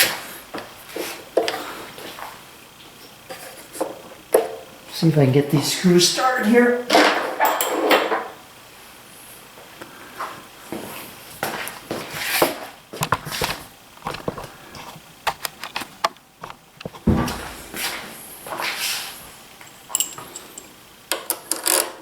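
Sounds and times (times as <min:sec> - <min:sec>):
light metal clicks and taps: 0:19.6 - 0:21.4.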